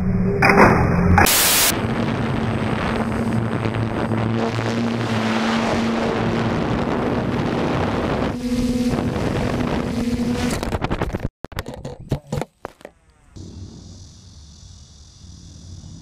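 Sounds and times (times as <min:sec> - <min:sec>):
drone propellers humming: 0:00.0 - 0:10.8, 0:12.8 - 0:16.0
wind noise on microphone: 0:01.6 - 0:11.3.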